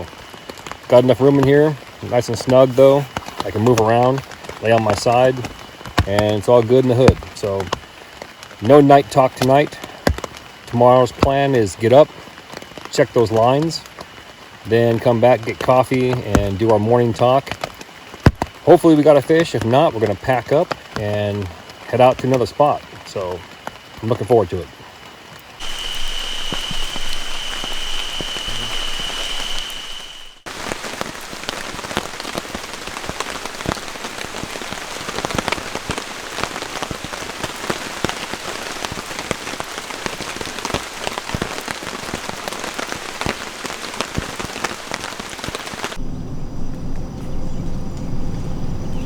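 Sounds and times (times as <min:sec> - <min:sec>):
heavy rain on a tent: 0:00.0 - 0:46.0
high-pitched whine: 0:25.6 - 0:30.5
low rumble: 0:46.0 - 0:49.0.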